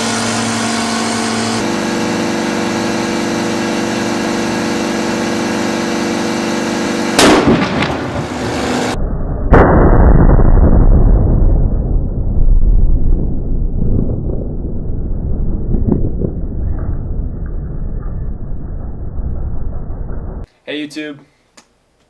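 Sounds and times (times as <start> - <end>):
air compressor humming: 0.0 - 8.6
ball bursting with a bang: 7.1 - 18.9
muffled bang: 7.2 - 8.3, 9.5 - 19.0.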